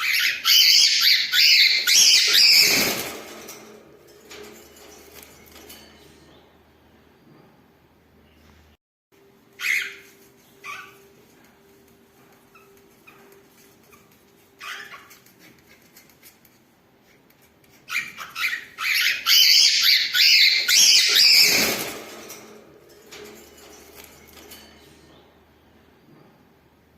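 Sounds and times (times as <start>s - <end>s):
birds chattering and squeaking: 0.0s - 3.6s, 9.6s - 11.4s, 17.4s - 22.3s.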